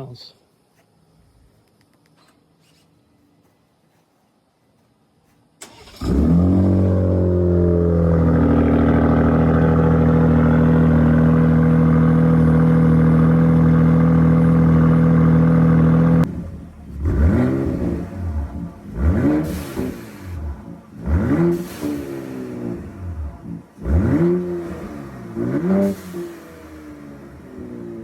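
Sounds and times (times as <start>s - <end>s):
engine rev: 5.6s - 28.0s
truck engine starting and idling: 5.6s - 28.0s.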